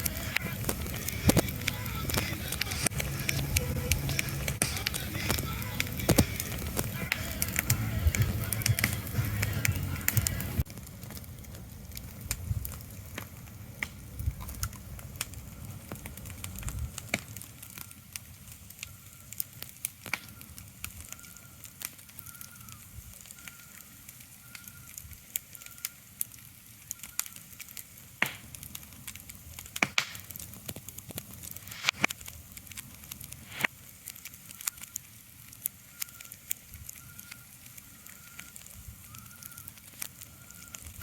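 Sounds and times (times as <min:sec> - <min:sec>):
low rumble: 0:00.0 - 0:12.8
sharp crackling: 0:00.0 - 0:41.0.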